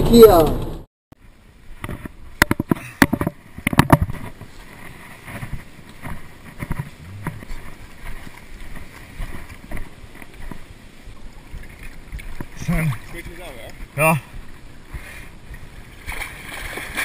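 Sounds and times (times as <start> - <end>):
water lapping and splashing: 1.2 - 17.0
sharp knocks and clicks: 1.8 - 4.4.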